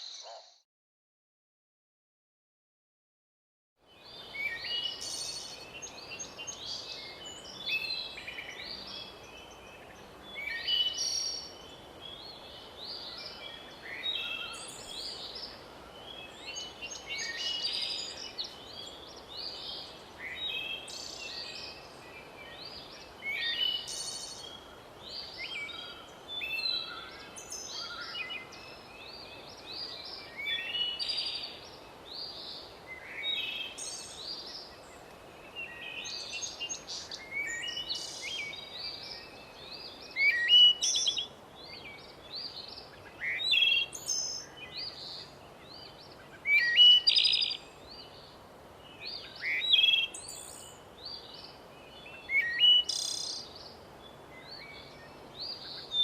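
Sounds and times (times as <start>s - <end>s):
faint steady hiss: 3.8s - 56.0s
birds chirping and singing: 4.0s - 48.3s.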